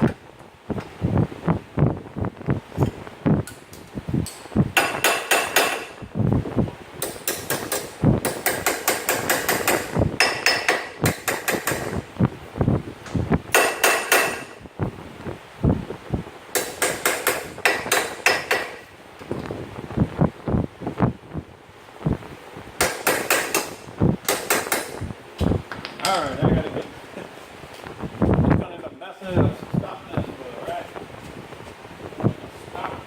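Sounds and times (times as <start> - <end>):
hammer striking metal: 4.3 - 6.0, 7.0 - 12.0, 13.5 - 14.6, 16.5 - 18.8, 22.8 - 25.0.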